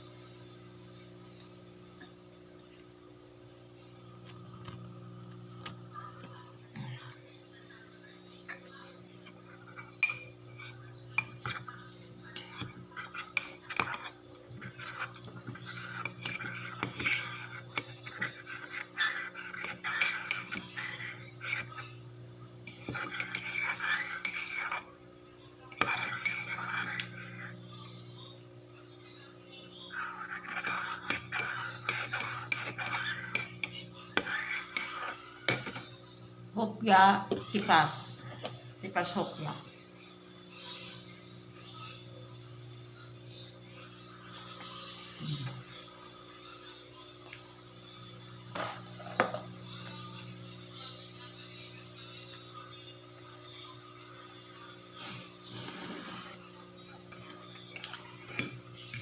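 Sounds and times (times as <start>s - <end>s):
steady low hum: 0.0s - 59.0s
metal spoon clinking against cup: 9.9s - 10.4s.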